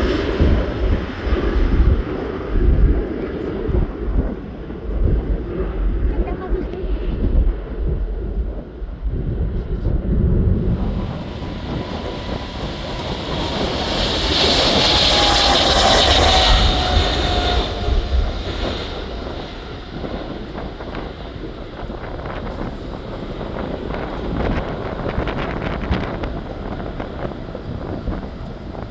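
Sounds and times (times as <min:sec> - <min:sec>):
jet engines roaring on takeoff: 0:00.0 - 0:28.9
wind rumbling on microphone: 0:00.0 - 0:28.9
thin jet whine: 0:10.0 - 0:28.2.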